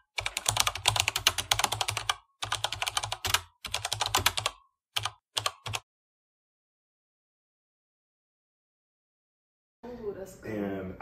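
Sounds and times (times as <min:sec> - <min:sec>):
rapid clicking like keyboard typing: 0:00.0 - 0:05.8.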